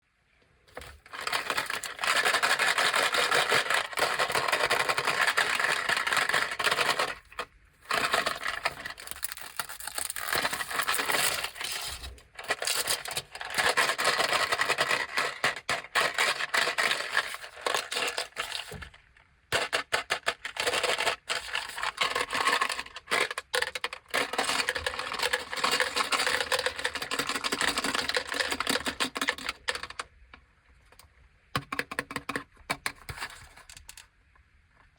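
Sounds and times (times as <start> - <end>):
plastic packaging crinkling: 0.7 - 19.0, 20.3 - 30.0.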